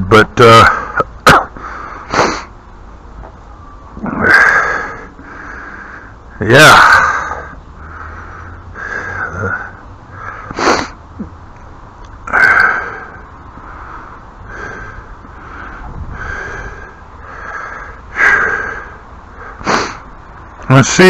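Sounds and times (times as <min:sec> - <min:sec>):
man breathing through nose: 0:01.6 - 0:02.6, 0:04.3 - 0:06.2, 0:07.3 - 0:11.0, 0:12.3 - 0:20.2.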